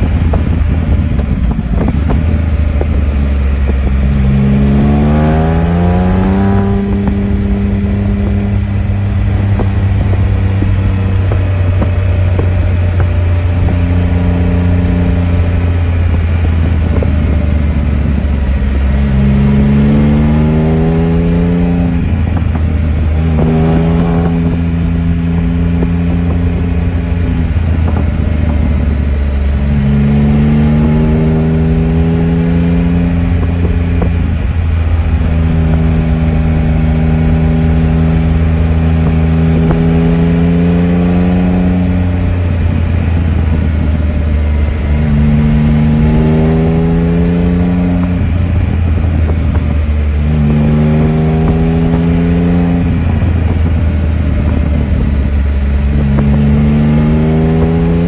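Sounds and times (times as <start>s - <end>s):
motorcycle engine accelerating: 0.0s - 58.0s
wind rushing over microphone: 0.0s - 58.0s.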